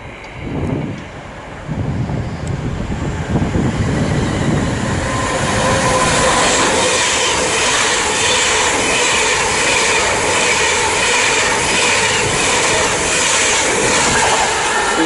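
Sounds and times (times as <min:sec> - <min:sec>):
train passing at speed: 0:00.0 - 0:15.0.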